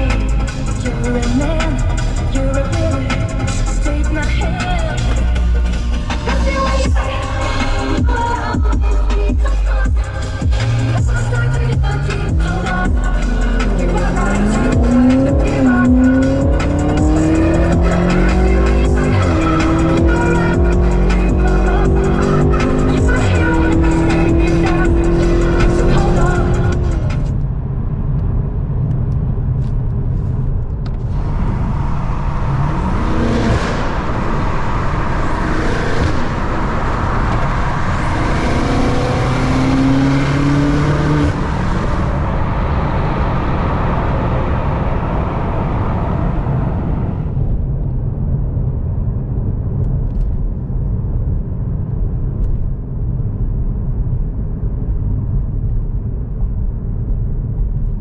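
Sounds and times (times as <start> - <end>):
car engine droning: 0.0 - 58.0
rushing noise: 10.2 - 49.8.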